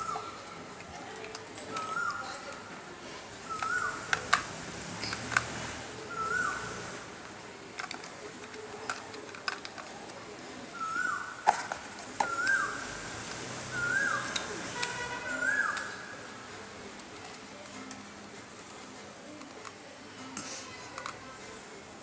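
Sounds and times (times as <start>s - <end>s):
bird calling: 3.5s - 4.3s, 6.1s - 6.8s, 12.2s - 12.9s, 13.7s - 14.5s, 15.3s - 16.1s.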